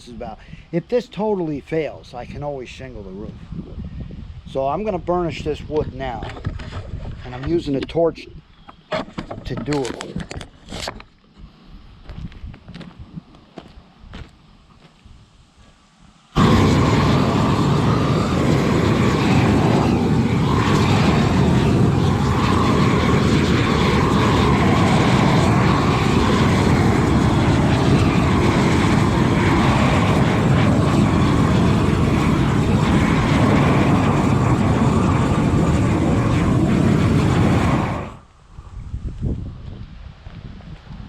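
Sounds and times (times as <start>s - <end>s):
torch flame rushing: 16.2s - 38.3s.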